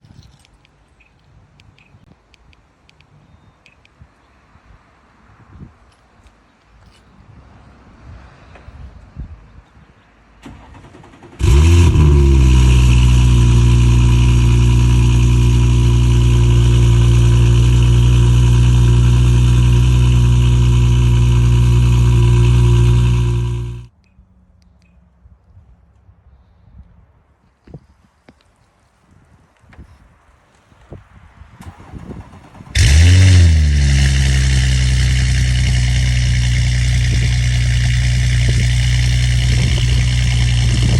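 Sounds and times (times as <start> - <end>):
car engine starting and idling: 10.4 - 23.9, 31.6 - 40.9.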